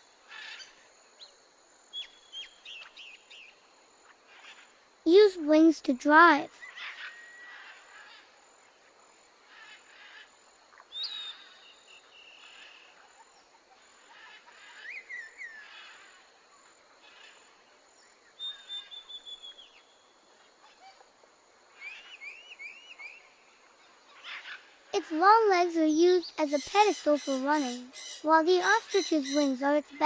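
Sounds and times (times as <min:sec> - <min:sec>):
small birds chirping and whistling: 0:10.9 - 0:13.5, 0:18.4 - 0:20.0, 0:21.8 - 0:23.4, 0:25.5 - 0:30.0.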